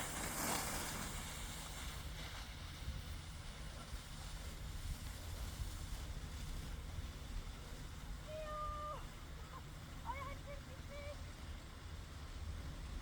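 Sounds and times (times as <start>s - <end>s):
brief hiss: 0.0s - 2.8s
wind rumbling on microphone: 0.0s - 13.0s.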